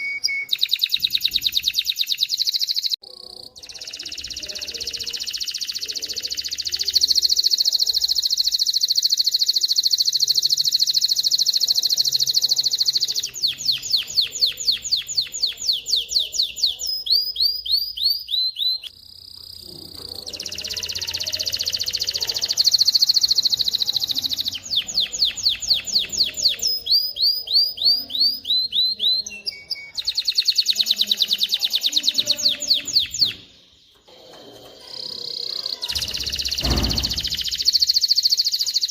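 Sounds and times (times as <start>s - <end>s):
canary singing trills and chirps: 0.0s - 38.9s.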